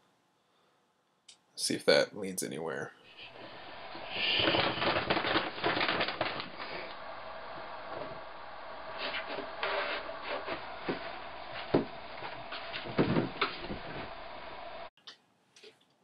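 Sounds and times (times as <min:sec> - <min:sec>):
steady hum: 0:03.0 - 0:14.9
handling knocks and rubbing: 0:09.0 - 0:14.8.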